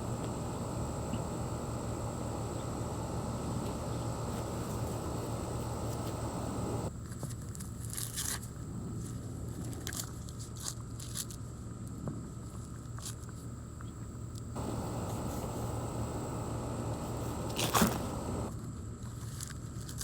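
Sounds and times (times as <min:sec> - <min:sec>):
steady background rumble: 0:14.6 - 0:18.5.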